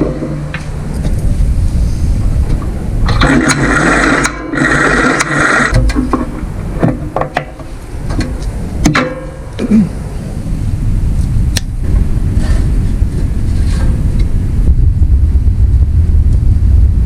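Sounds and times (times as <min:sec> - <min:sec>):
low rumble: 0:00.0 - 0:05.1, 0:05.7 - 0:17.0
knocks and clanks: 0:02.4 - 0:09.8.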